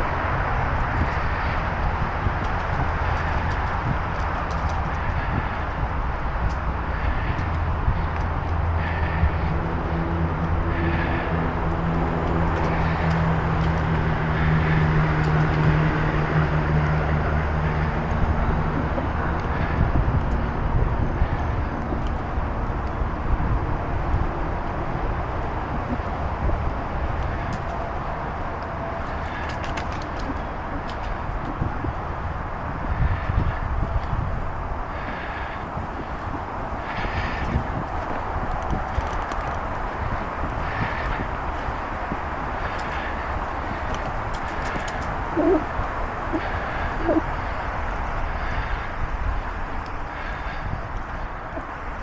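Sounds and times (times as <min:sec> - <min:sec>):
bicycle rolling noise: 0:00.0 - 0:52.0
low droning engine hum: 0:00.0 - 0:52.0
wind rushing over microphone: 0:00.0 - 0:52.0.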